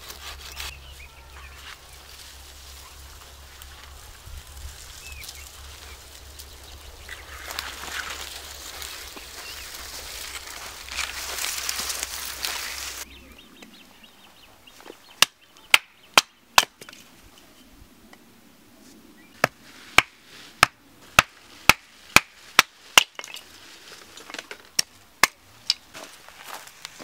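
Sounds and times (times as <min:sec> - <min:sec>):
hatchet chopping wood: 0:19.4 - 0:23.4, 0:25.2 - 0:25.4.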